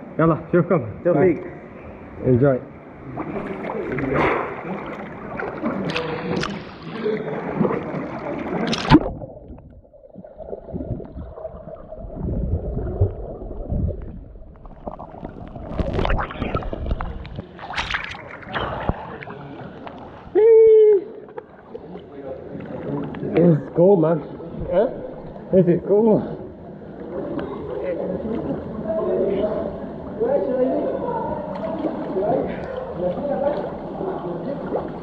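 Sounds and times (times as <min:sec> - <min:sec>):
water splashing: 0:03.0 - 0:20.3
muffled underwater gurgling: 0:07.2 - 0:19.3.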